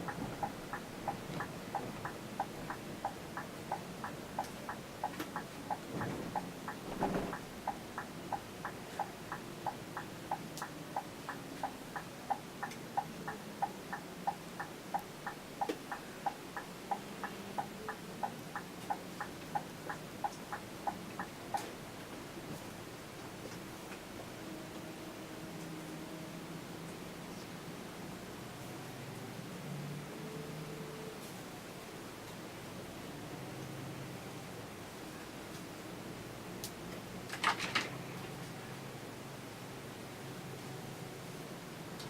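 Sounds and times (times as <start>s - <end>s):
turn signal ticking: 0.0s - 21.8s
bus engine hum: 0.0s - 42.0s.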